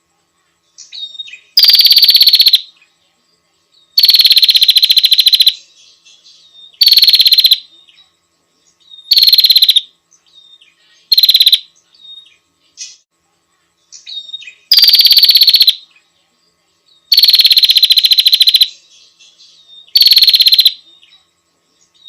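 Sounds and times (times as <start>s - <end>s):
soft bird chirps: 0.4s - 22.0s
bird trilling: 0.9s - 2.7s, 4.0s - 5.6s, 6.8s - 7.7s, 9.0s - 9.9s, 11.1s - 12.3s, 14.0s - 15.8s, 17.1s - 18.8s, 19.8s - 20.8s.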